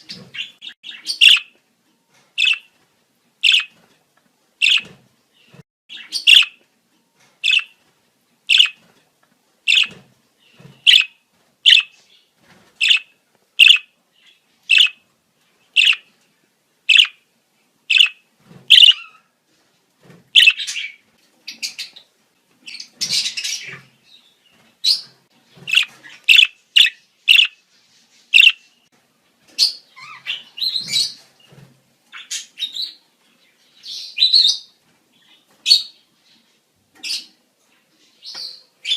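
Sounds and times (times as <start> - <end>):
budgerigars chirping and warbling: 0.0 - 1.5, 2.4 - 2.7, 3.4 - 3.8, 4.6 - 6.6, 7.4 - 7.8, 8.5 - 8.8, 9.7 - 12.0, 12.8 - 15.0, 15.7 - 16.1, 16.9 - 17.2, 17.9 - 19.3, 20.4 - 24.0, 24.8 - 28.8, 29.6 - 31.2.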